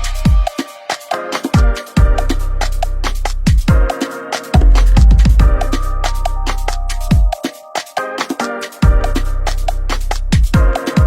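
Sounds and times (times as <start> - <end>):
electronic dance music: 0.0 - 11.0
deep bass: 2.0 - 3.7, 4.6 - 7.3, 8.8 - 10.6.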